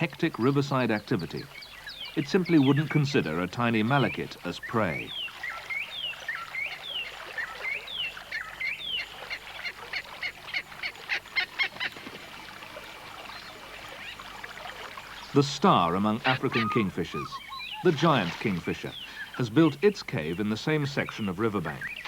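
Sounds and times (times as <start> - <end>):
bird calling with falling notes: 0.0 - 22.0.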